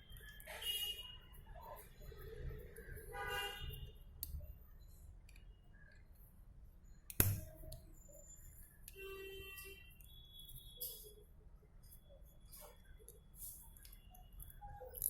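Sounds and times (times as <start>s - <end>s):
metal parts and tools clinking: 14.4s - 15.0s.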